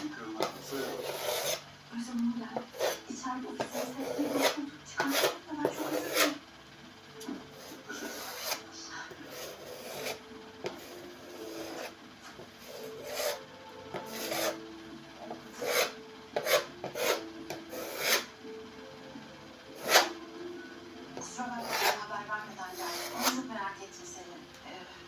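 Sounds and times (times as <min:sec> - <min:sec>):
hand scraping on laminate flooring: 0:00.4 - 0:01.6, 0:12.6 - 0:13.4, 0:14.0 - 0:14.6.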